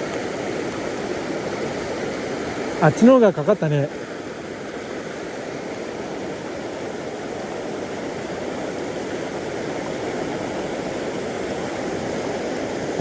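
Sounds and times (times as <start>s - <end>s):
river water rushing over stones: 0.0s - 13.0s.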